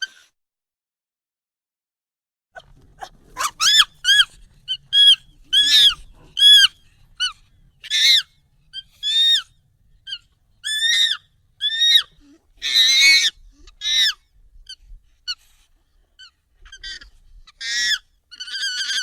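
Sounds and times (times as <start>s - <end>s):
high-pitched monkey calls: 3.0s - 15.4s, 16.2s - 19.0s.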